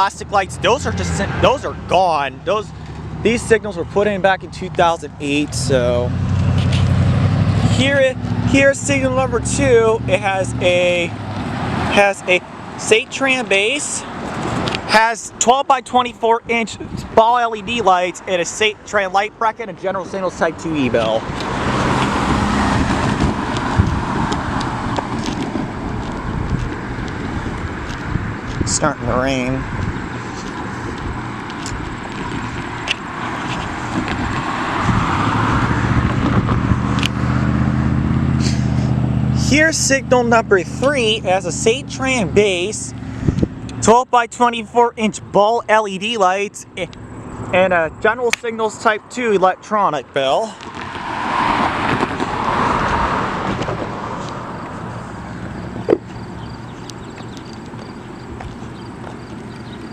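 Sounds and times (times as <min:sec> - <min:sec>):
car going by: 0:00.0 - 0:15.1, 0:18.2 - 0:43.9, 0:46.6 - 0:59.9
low engine hum: 0:20.6 - 0:43.9, 0:50.6 - 0:59.9
faint footsteps: 0:22.8 - 0:28.8, 0:29.7 - 0:35.0, 0:52.9 - 0:59.9.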